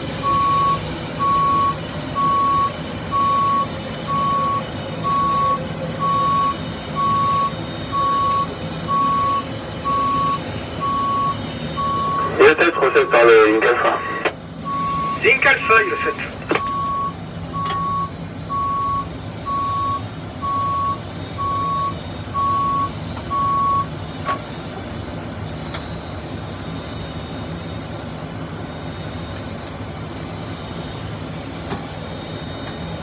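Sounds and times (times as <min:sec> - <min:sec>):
reversing alarm beeping: 0:00.0 - 0:24.0
tug engine running: 0:00.0 - 0:33.0.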